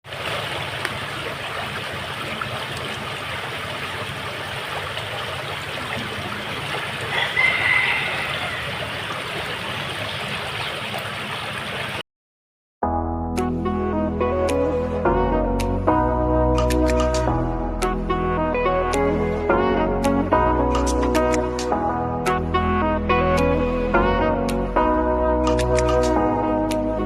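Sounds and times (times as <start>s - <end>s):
steady rain falling: 0.1s - 9.8s.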